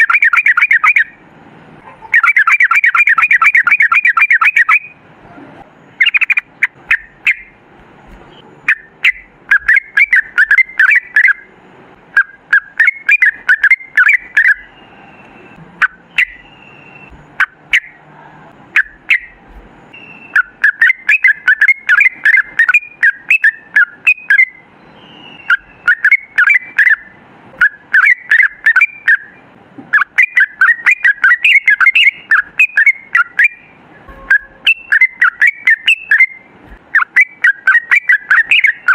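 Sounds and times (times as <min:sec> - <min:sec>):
bird singing chattering phrases: 0:00.0 - 0:01.2, 0:02.0 - 0:05.0, 0:05.9 - 0:07.6, 0:08.2 - 0:11.5, 0:12.1 - 0:18.1, 0:18.8 - 0:38.9
single bird chirps: 0:12.2 - 0:18.0, 0:18.8 - 0:27.0, 0:30.0 - 0:38.9.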